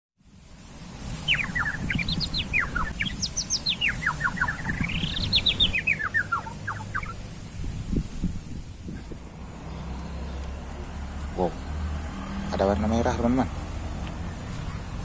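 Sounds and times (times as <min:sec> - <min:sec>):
low rumbling noise: 0:00.3 - 0:15.0
songbird chirping: 0:00.9 - 0:15.0.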